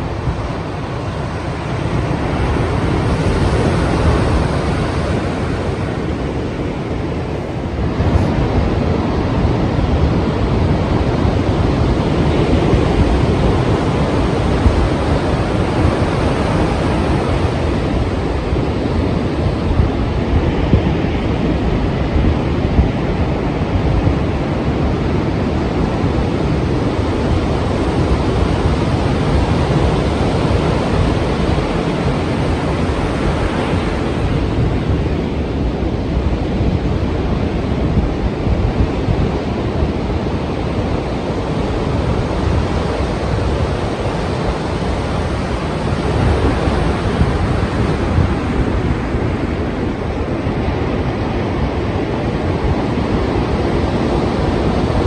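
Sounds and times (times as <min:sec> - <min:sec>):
ocean waves breaking: 0:00.0 - 0:10.7, 0:26.4 - 0:37.9, 0:39.2 - 0:55.0
wind buffeting microphone: 0:00.0 - 0:55.0.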